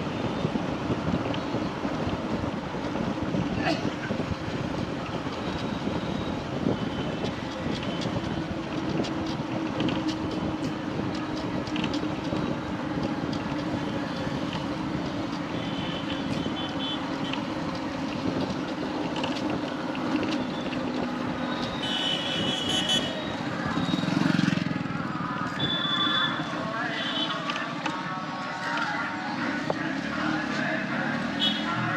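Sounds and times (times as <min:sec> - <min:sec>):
motorcycle engine and road noise: 0:00.0 - 0:31.9
high beeps: 0:25.6 - 0:26.4.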